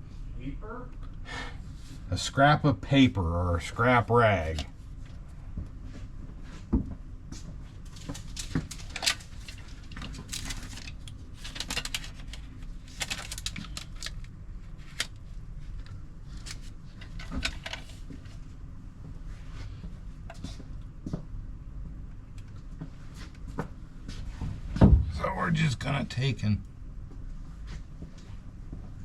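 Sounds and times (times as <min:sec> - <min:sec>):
low steady hum: 0:00.0 - 0:29.0
rustling and scraping: 0:07.4 - 0:18.4.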